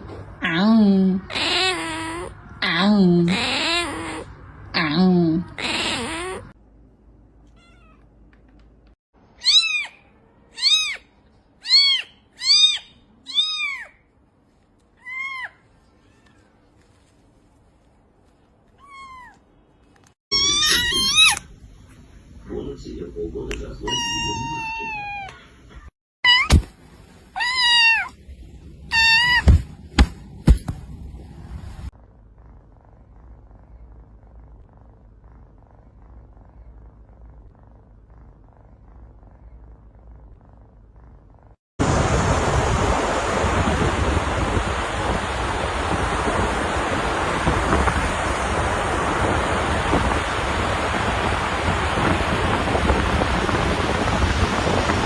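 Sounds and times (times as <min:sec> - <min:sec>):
cat meowing: 0:01.3 - 0:02.4, 0:03.3 - 0:04.3, 0:05.5 - 0:06.6, 0:07.5 - 0:08.1, 0:09.4 - 0:14.0, 0:18.8 - 0:19.4, 0:20.3 - 0:21.4, 0:23.9 - 0:25.4, 0:27.4 - 0:28.2, 0:28.9 - 0:29.5.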